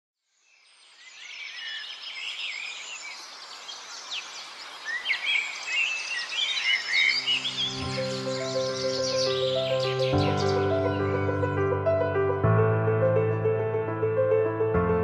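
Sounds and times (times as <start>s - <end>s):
songbirds chirping: 0.3s - 11.6s.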